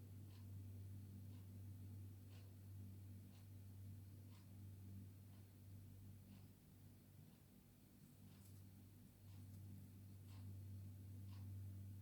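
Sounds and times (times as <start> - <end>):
faint soft tick: 4.3 - 4.5, 7.3 - 11.6.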